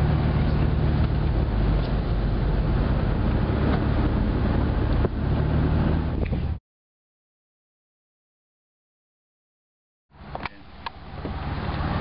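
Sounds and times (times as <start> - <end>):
vehicle engine and road noise: 0.0 - 6.6, 10.1 - 12.0.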